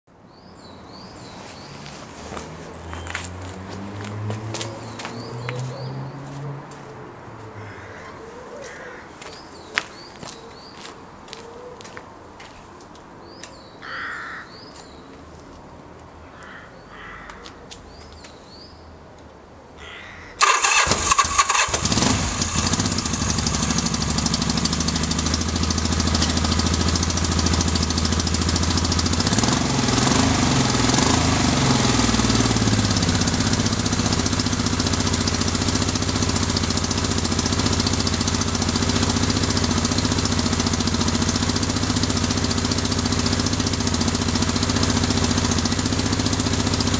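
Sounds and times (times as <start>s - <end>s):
motorcycle engine starting and running: 20.4s - 46.9s.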